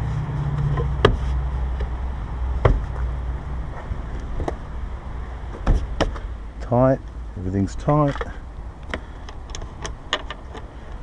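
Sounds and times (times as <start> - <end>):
van engine idling: 0.0 - 11.0
sharp knocks on side mirror: 2.6 - 2.9.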